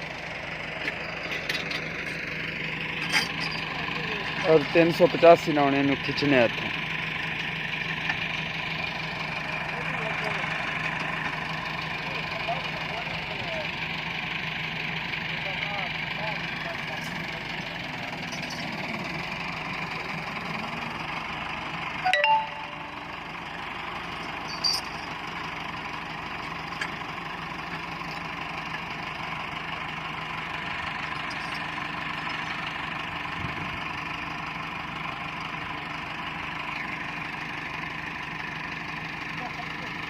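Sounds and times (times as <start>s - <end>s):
tractor diesel engine running: 0.0s - 40.0s
ringing metal clang: 24.5s - 25.1s.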